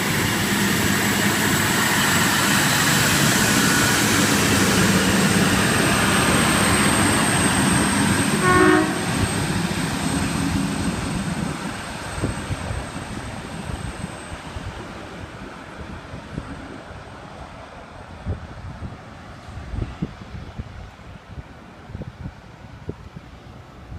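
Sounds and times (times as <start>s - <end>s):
diesel railcar engine and wheels: 0.0s - 23.9s
train horn toot: 8.2s - 9.4s.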